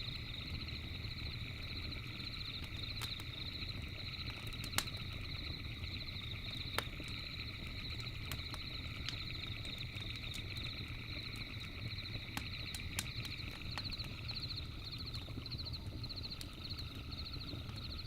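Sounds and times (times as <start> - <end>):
campfire crackling and popping: 0.0 - 18.0
low rumble of fire: 0.0 - 18.0
night insects chirping: 0.0 - 18.0.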